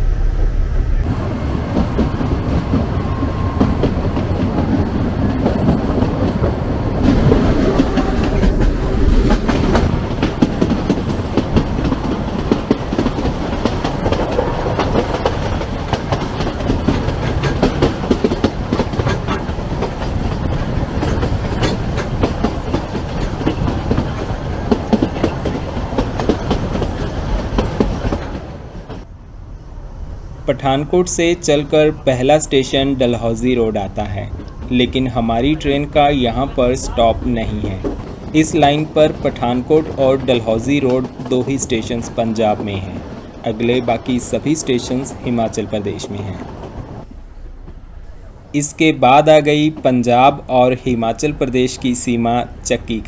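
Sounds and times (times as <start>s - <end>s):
train wheels clattering over rails: 1.0s - 29.1s, 31.0s - 47.9s.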